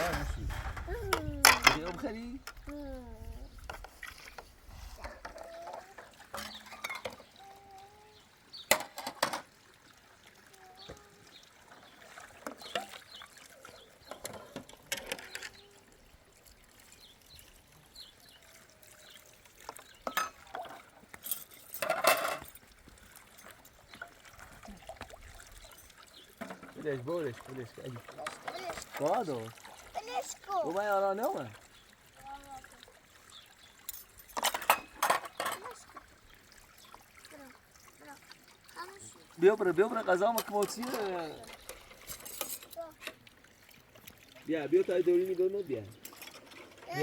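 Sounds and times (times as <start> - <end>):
liquid being poured: 0.0 - 47.0
dishes and glassware clinking: 6.3 - 7.2, 20.1 - 22.6, 33.9 - 35.7, 42.1 - 42.7.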